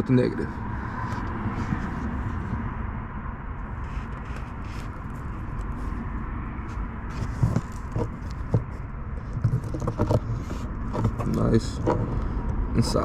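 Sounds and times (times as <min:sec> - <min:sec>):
steady low rumble: 0:00.0 - 0:13.0
wire clicks and scrapes: 0:03.8 - 0:12.3.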